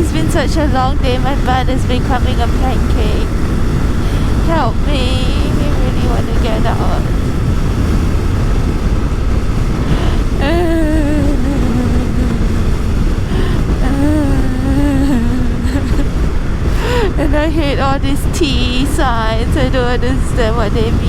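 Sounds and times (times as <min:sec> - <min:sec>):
person humming: 0:00.0 - 0:03.2, 0:09.9 - 0:12.6, 0:13.3 - 0:16.1
wind rush: 0:00.0 - 0:21.0.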